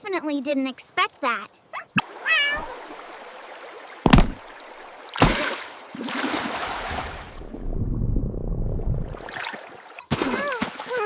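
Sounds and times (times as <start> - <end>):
loud water splashes: 4.0 - 7.4.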